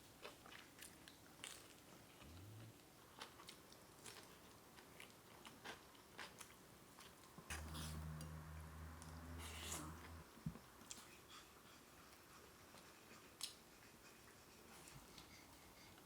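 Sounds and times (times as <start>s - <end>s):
faint chewing with crunches: 0.0s - 8.3s, 9.0s - 16.0s
low steady hum: 7.4s - 11.8s.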